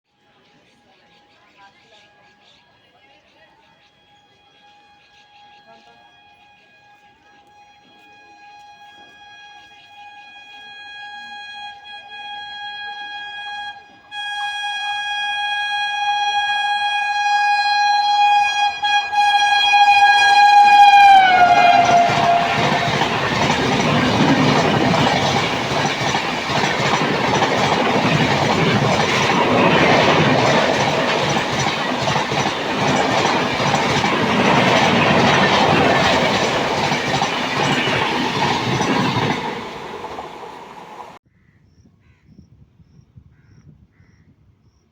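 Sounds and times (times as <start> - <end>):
locomotive horn blast: 5.9 - 41.2
train wheels on rails: 19.2 - 41.2.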